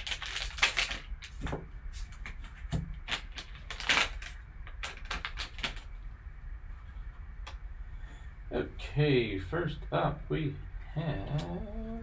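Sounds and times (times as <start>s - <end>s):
plastic packaging rustling: 0.0s - 6.0s.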